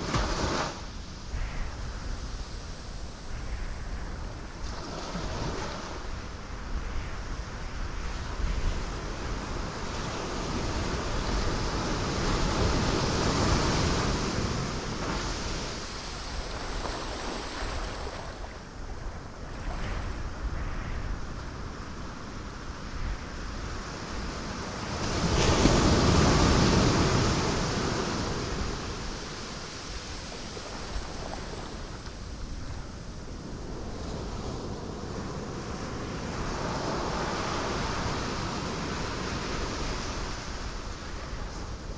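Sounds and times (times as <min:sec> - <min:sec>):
waves breaking on rocks: 0:09.7 - 0:18.8, 0:24.2 - 0:41.3.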